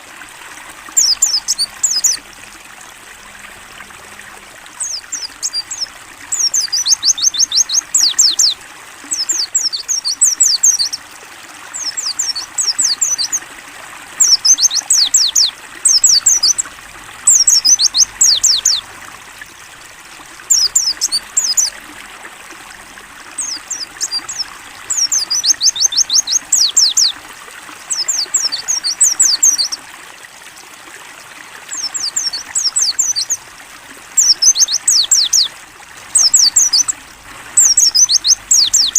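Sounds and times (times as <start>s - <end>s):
trickling water: 0.0s - 38.9s.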